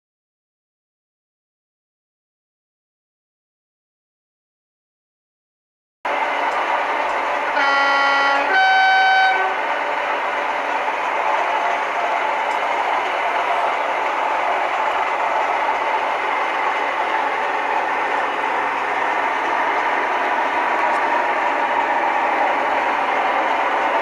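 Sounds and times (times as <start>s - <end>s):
model train running gear on track: 6.1s - 24.0s.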